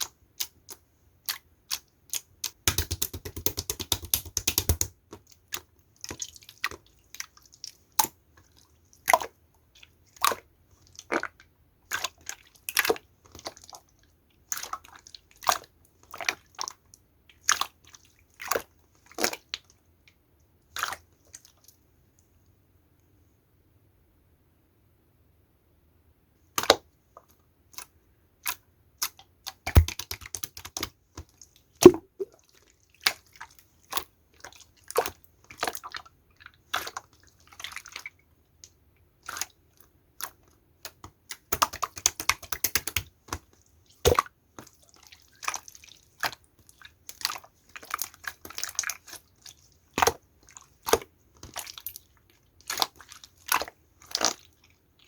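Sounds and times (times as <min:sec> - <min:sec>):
slime clicking and popping: 0:01.7 - 0:05.0, 0:29.5 - 0:30.9, 0:31.8 - 0:32.3, 0:40.8 - 0:43.1.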